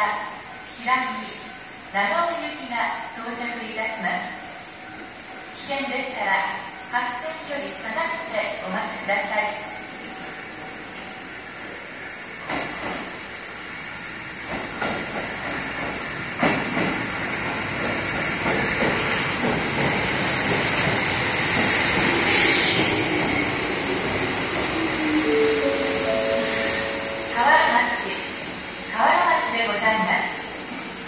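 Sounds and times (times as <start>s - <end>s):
electric train rumble: 0.0s - 31.0s
falling whine of train: 4.2s - 31.0s
wheels clacking over rail joints: 14.4s - 25.0s.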